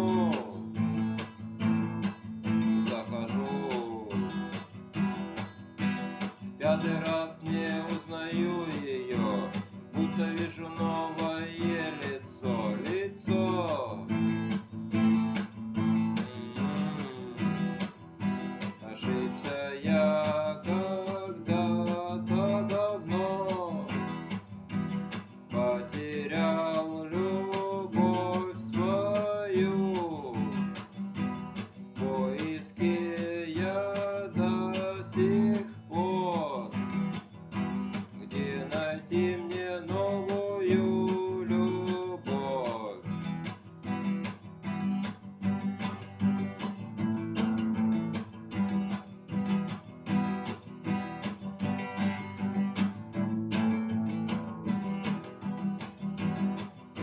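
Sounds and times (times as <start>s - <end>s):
person singing: 0.0s - 1.2s, 2.4s - 4.6s, 6.6s - 14.6s, 15.2s - 24.5s, 25.5s - 30.9s, 31.8s - 37.4s, 38.0s - 43.3s
acoustic guitar strumming: 0.0s - 57.0s.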